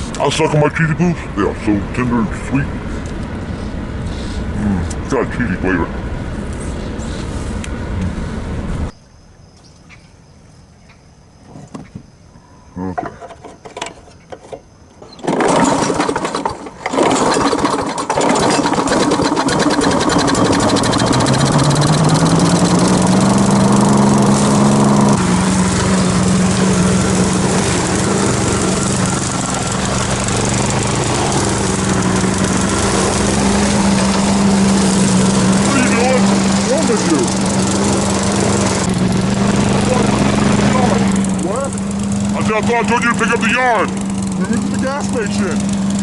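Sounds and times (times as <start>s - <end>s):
lawn mower pull-start: 13.0s - 46.0s
lawn mower engine running: 13.2s - 46.0s.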